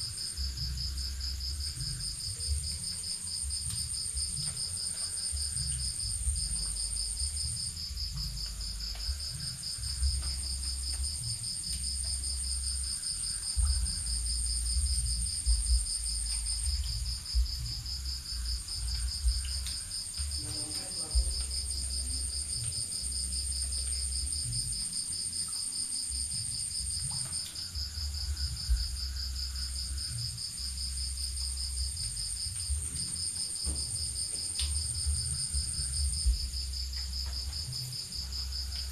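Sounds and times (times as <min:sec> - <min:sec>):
high steady cricket trill: 0:00.0 - 0:38.9
low rumble: 0:03.4 - 0:20.6.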